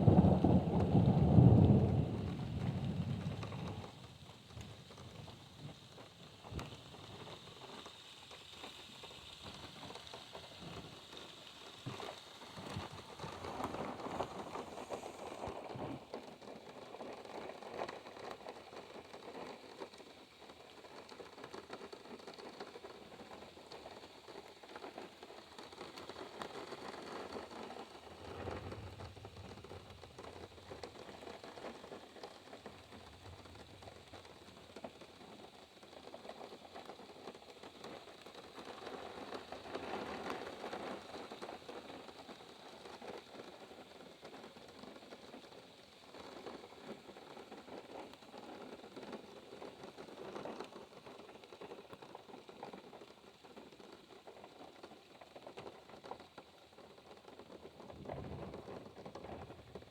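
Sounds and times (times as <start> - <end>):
rain falling on a car: 0.0 - 59.9
faint low rumble: 28.0 - 31.3.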